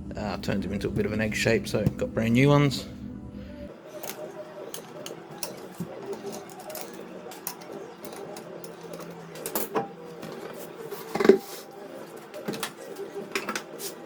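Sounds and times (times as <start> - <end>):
steady low hum: 0.0 - 6.1.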